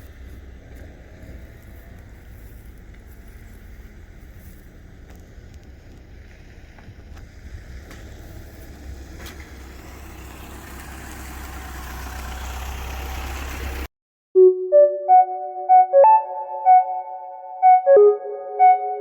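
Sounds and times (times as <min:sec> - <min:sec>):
vehicle engine and road noise: 0:00.0 - 0:13.9.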